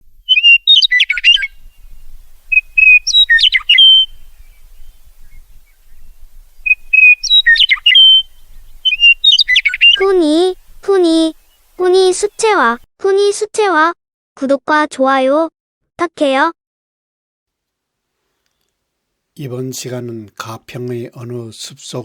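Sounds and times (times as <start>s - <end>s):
songbird singing: 0.0s - 12.8s.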